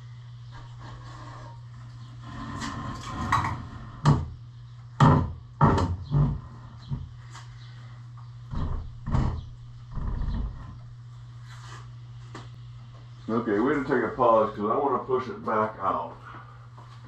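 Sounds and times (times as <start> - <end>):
steady low hum: 0.0 - 17.0
wooden boards creaking and scraping: 2.2 - 4.3, 8.5 - 10.9.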